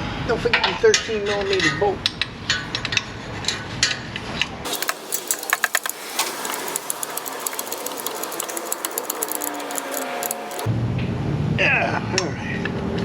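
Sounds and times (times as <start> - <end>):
ratchet wrench clicking: 4.7 - 10.6
metal hand tools clinking: 4.7 - 10.7.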